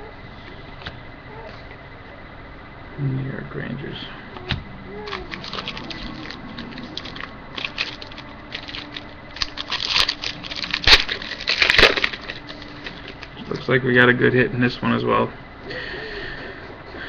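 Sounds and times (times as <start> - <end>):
foil wrapper crinkling: 4.9 - 13.8.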